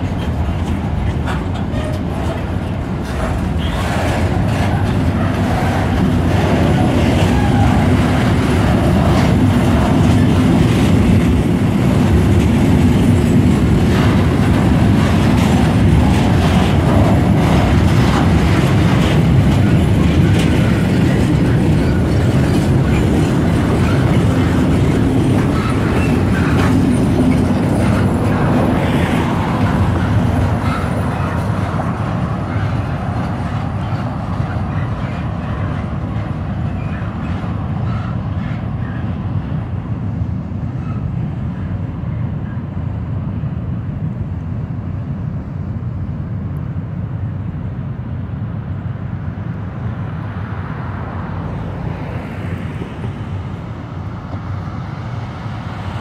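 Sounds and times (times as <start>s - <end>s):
wheels clacking over rail joints: 0.0s - 41.8s
train wheels rumbling on rail: 0.0s - 56.0s.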